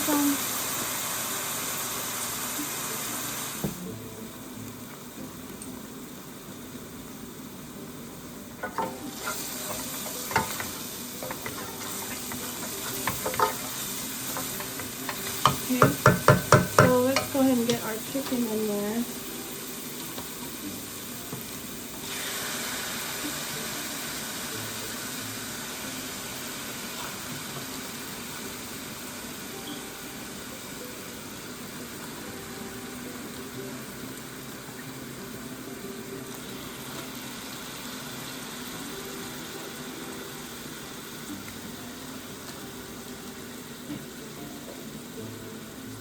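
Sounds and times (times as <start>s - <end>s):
chicken sizzling in a pan: 0.0s - 46.0s.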